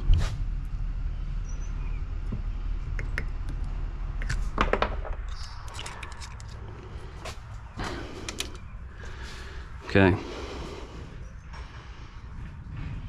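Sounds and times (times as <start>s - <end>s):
low rumble: 0.0s - 13.0s
small parts clicking: 5.1s - 6.8s, 8.2s - 8.7s.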